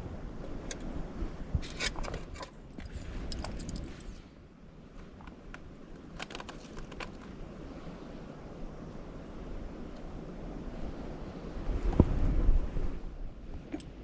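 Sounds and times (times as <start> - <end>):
wind noise on microphone: 0.0 - 4.3, 8.6 - 14.0.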